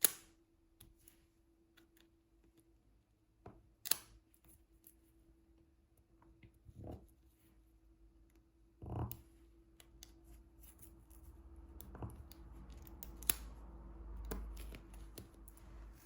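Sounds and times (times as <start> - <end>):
tool clicks and snips: 11.8 - 13.6.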